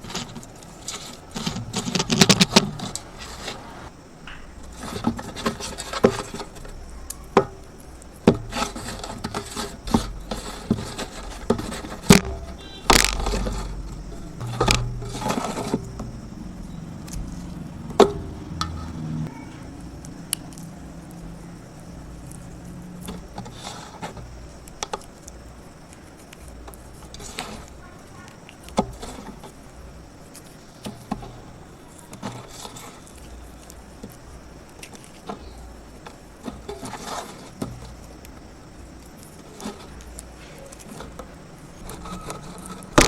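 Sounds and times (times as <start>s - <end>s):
clay cracking and crumbling: 0.0s - 18.8s, 19.6s - 43.0s
low hum: 6.3s - 23.4s.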